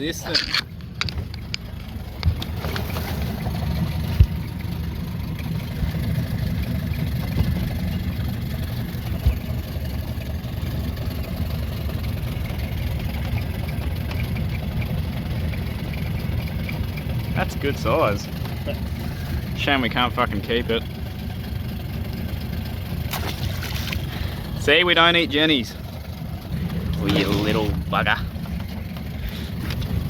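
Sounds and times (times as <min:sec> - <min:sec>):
boat motor idling: 0:00.0 - 0:30.0.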